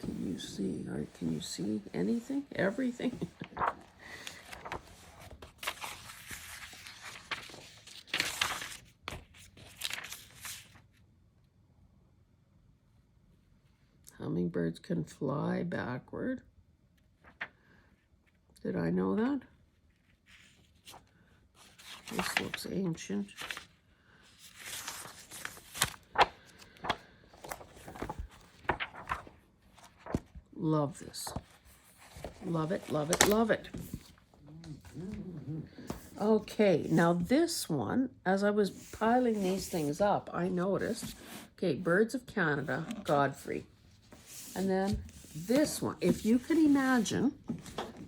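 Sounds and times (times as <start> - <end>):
book pages turning: 0.0 - 10.9, 17.2 - 17.5, 20.0 - 30.5, 31.1 - 37.3, 38.7 - 41.6, 42.5 - 48.0.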